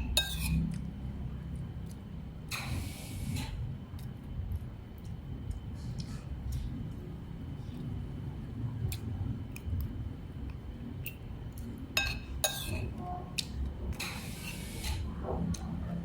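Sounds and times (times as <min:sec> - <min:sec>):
dishes and utensils clinking: 0:00.0 - 0:00.6, 0:12.0 - 0:13.0
low background rumble: 0:00.0 - 0:02.5, 0:03.5 - 0:14.0.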